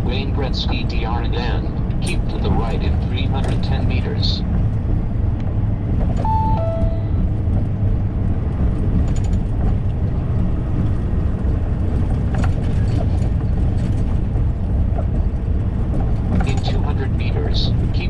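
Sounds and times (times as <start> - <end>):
truck engine and road rumble: 0.0 - 18.0
electronic two-note chime: 6.2 - 7.3.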